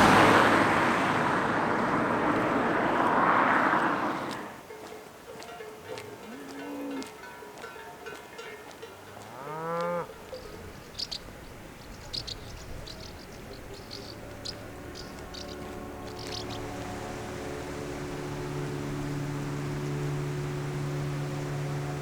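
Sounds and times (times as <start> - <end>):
background music sustained notes: 4.6 - 22.0
cow mooing: 6.2 - 7.1, 9.2 - 10.5.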